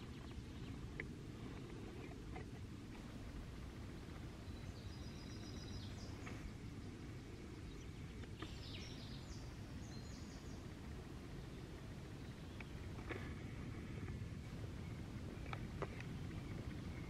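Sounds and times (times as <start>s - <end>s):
low outdoor rumble: 0.0s - 17.0s
small bird chirping: 4.4s - 6.6s, 7.6s - 10.7s.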